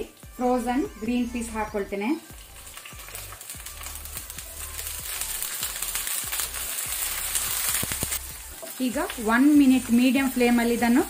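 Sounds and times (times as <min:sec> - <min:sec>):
peas sizzling in hot oil: 0:00.0 - 0:11.0.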